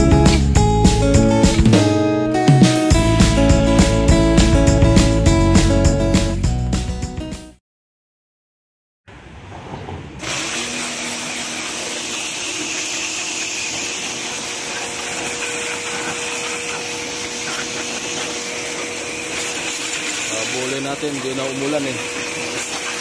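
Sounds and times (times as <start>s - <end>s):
pressure washer spray: 10.2s - 23.0s.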